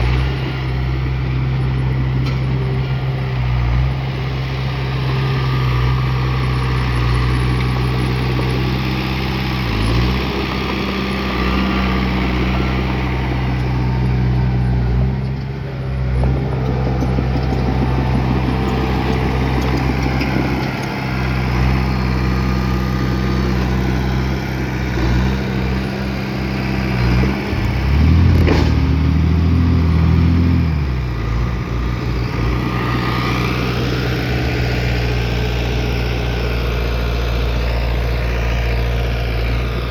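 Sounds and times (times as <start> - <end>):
bulldozer diesel engine running: 0.0 - 39.9
sharp knock: 28.2 - 29.0.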